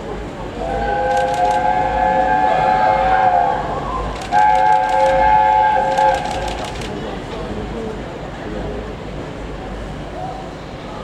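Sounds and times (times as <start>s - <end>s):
train whistle chord: 0.6s - 6.4s
sharp clicks: 5.9s - 6.9s.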